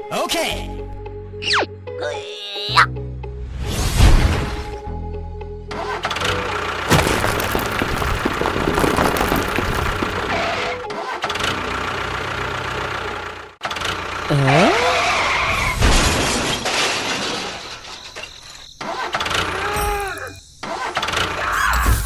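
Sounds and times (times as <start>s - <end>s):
small tractor engine running: 5.7s - 15.2s.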